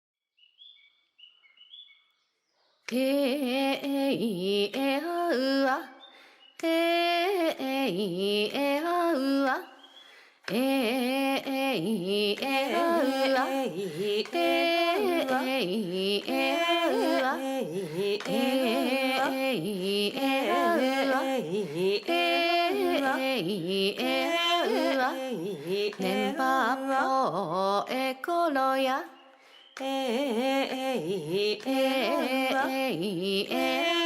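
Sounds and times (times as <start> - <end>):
person singing slow melody: 24.6 - 27.1.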